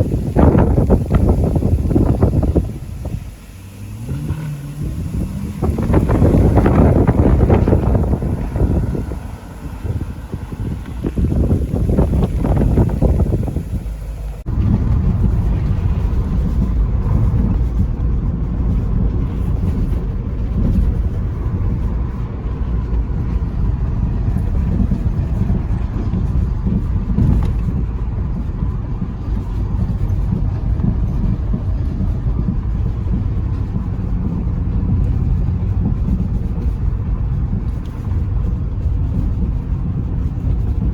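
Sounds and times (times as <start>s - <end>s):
car engine droning: 0.0s - 40.9s
road noise: 0.0s - 40.9s.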